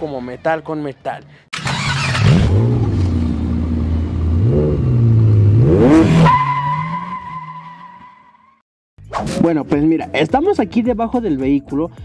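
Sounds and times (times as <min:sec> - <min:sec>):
car engine revving: 0:01.6 - 0:07.6.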